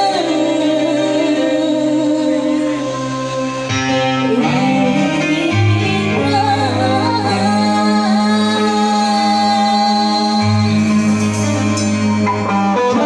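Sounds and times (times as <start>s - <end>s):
guitar: 0.0s - 13.0s
person singing: 0.0s - 13.0s
bass notes: 2.8s - 13.0s.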